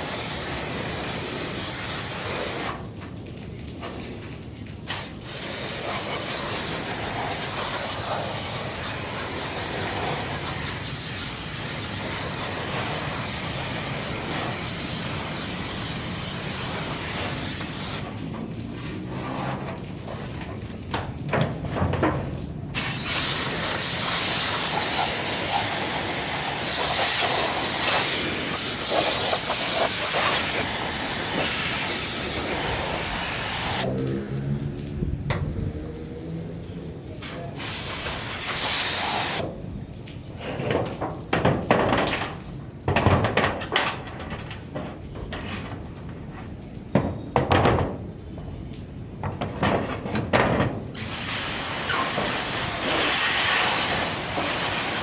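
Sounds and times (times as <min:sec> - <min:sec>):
high-pressure water spray hissing: 0:00.0 - 0:03.0, 0:03.8 - 0:22.0, 0:22.7 - 0:34.6, 0:35.8 - 0:39.6, 0:50.9 - 0:55.0.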